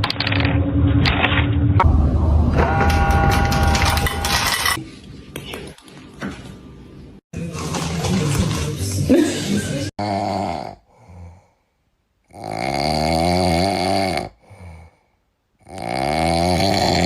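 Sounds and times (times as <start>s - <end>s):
rattling snores: 12.3s - 14.4s, 15.6s - 17.0s.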